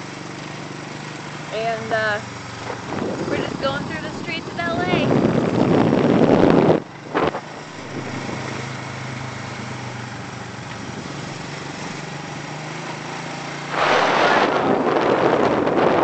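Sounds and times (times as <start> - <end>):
small motorcycle engine running: 0.0 - 16.0
wind rush on microphone: 2.0 - 8.8, 13.7 - 16.0.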